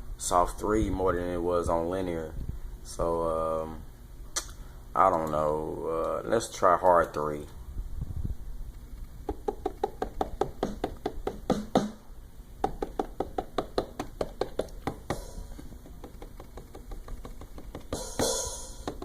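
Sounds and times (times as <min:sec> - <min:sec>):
finger taps on drum pads: 0:09.2 - 0:12.0, 0:12.6 - 0:19.0.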